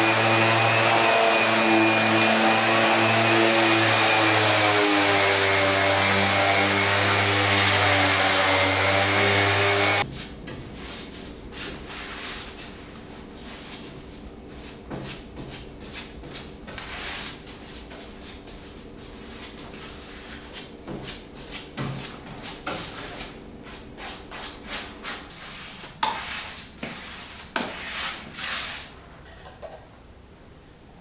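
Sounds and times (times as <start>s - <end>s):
rubbing and scraping strokes: 3.6s - 29.0s.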